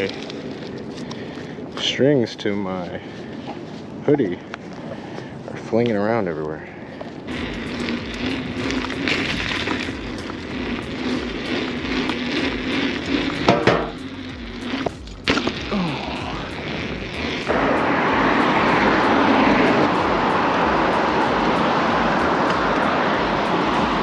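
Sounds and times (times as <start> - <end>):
wind and road noise rushing: 0.0 - 24.0
knocks: 13.5 - 13.9.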